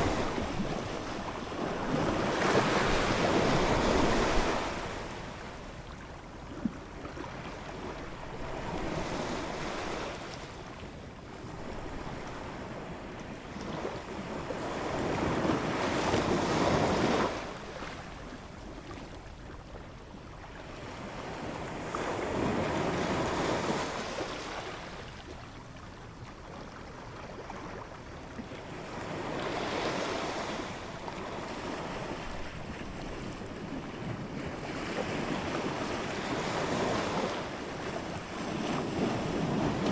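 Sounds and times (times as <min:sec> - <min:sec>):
ocean waves: 0:00.0 - 0:06.0, 0:28.4 - 0:39.9.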